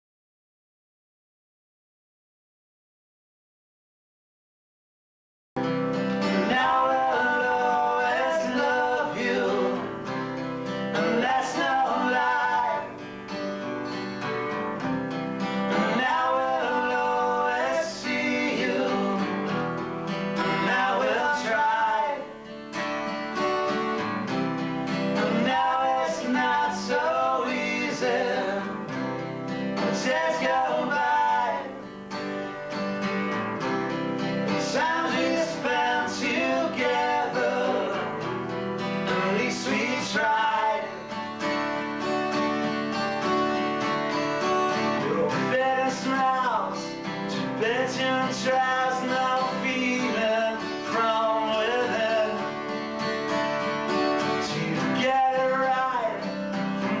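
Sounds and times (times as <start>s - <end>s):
acoustic guitar strumming: 5.6s - 57.0s
person singing: 6.2s - 10.2s, 10.9s - 13.2s, 15.7s - 19.8s, 20.4s - 22.4s, 25.1s - 29.0s, 29.8s - 32.0s, 34.5s - 38.3s, 39.0s - 41.3s, 44.8s - 47.0s, 47.6s - 52.5s, 54.4s - 57.0s.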